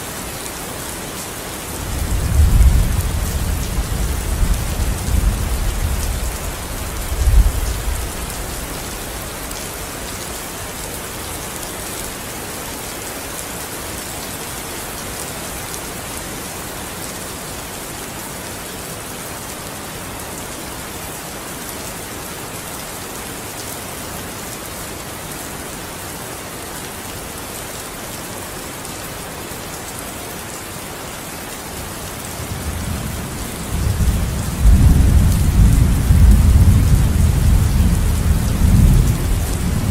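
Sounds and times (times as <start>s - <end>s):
steady rain hissing: 0.0s - 39.9s
thunder rumbling: 33.6s - 39.9s.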